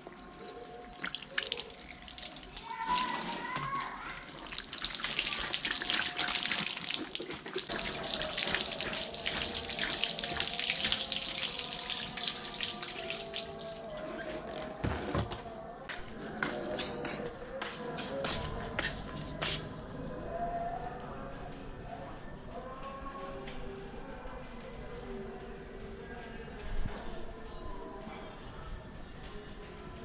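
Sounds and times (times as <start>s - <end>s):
water running and splashing: 0.9s - 14.2s.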